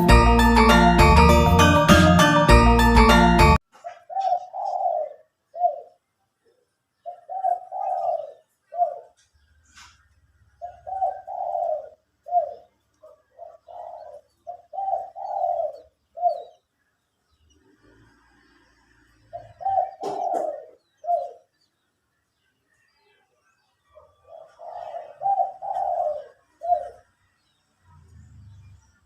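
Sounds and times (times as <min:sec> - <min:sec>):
doves cooing: 0:03.8 - 0:06.0, 0:07.0 - 0:09.3, 0:10.6 - 0:16.6, 0:19.3 - 0:21.5, 0:24.0 - 0:27.1.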